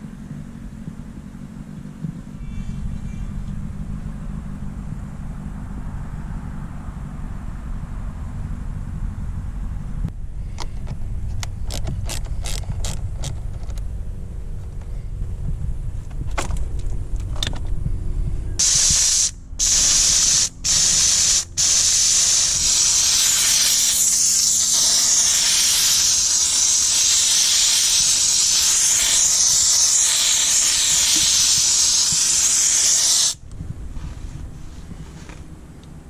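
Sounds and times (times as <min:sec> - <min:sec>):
low rumble: 0:00.0 - 0:32.8, 0:33.4 - 0:36.0
steam cleaner hissing: 0:18.6 - 0:33.4.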